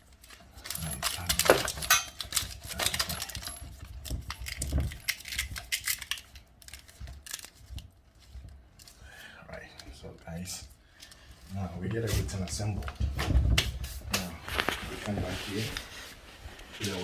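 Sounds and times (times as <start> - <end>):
metal fittings clicking and rattling: 0.2 - 7.6.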